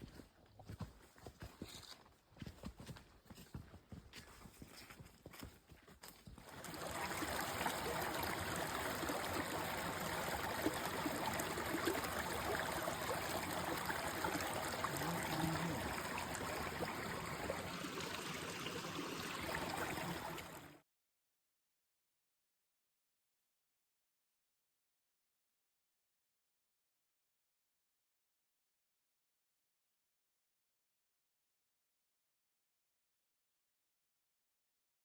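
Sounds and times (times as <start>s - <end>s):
stream water flowing: 6.4s - 20.8s.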